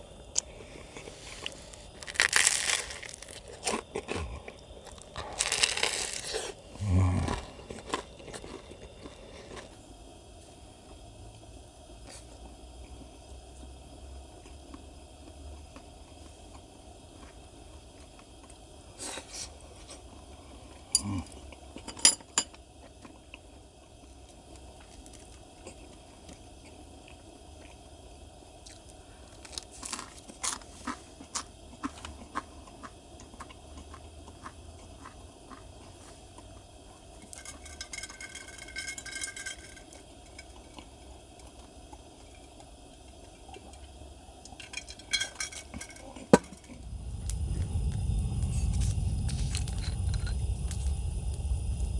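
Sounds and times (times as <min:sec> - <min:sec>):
utensils clinking against dishes: 0:44.6 - 0:46.6.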